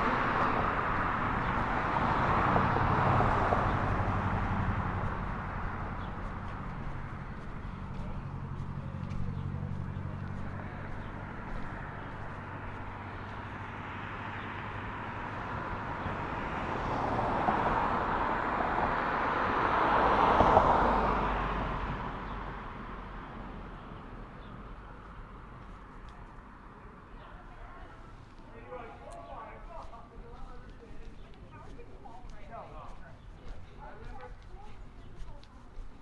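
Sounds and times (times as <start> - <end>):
car driving past: 0.0 - 27.1
low engine hum: 0.0 - 36.0.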